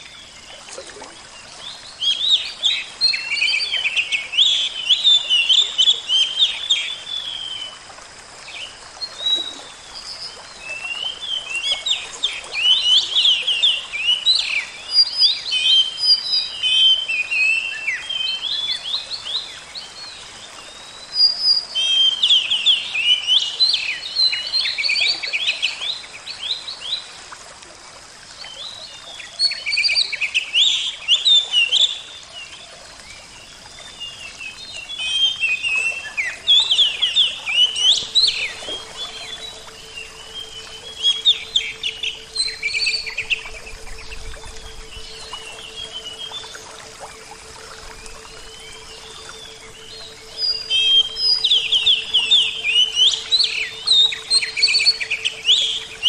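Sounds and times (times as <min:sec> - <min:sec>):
songbirds chirping: 0:00.0 - 0:07.8, 0:28.4 - 0:56.0
faint steady hiss: 0:00.0 - 0:56.0.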